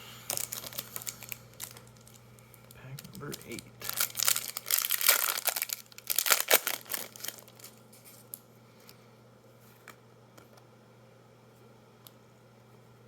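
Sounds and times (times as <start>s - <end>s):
foil wrapper tearing and crinkling: 0.3s - 8.4s.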